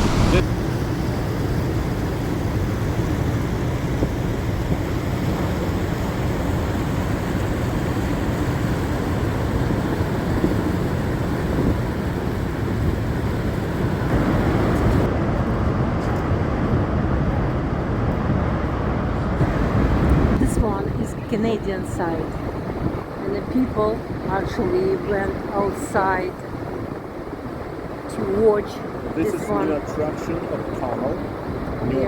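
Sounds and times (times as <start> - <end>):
waterfall roaring: 0.0 - 1.0, 1.9 - 15.6
wind on microphone: 0.0 - 32.0.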